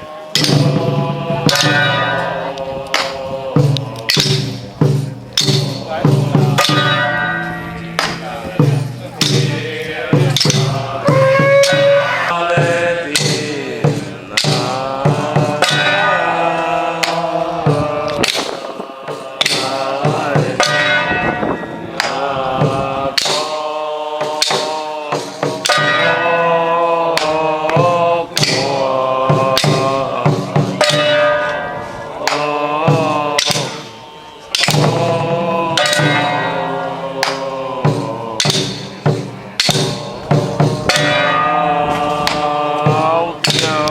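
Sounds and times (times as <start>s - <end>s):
chanted melody: 0.0s - 43.9s
percussion strikes: 0.0s - 43.9s
ringing bells: 1.6s - 2.6s, 6.6s - 8.4s, 20.6s - 22.0s, 39.7s - 42.1s.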